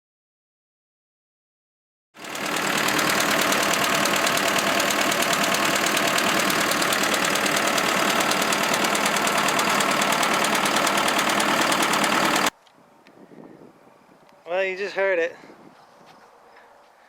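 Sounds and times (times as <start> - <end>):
diesel engine knocking: 2.2 - 12.5.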